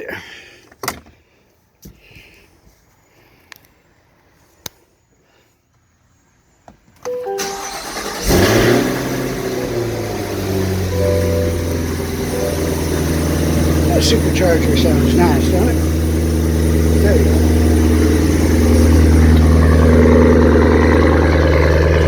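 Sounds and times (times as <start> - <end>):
car engine starting and idling: 7.0 - 22.0
supercharger whining: 7.4 - 22.0.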